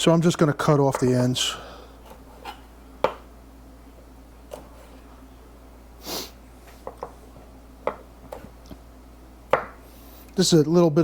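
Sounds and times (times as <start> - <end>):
short breathy sniff: 6.0 - 6.4
knife tapping on cutting board: 9.5 - 9.8.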